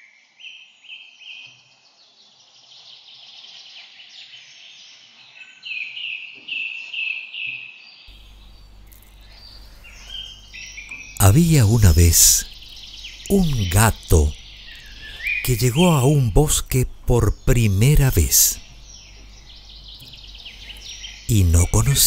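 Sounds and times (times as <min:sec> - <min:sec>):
birds chattering: 0:08.1 - 0:22.0
low steady hum: 0:08.1 - 0:22.0.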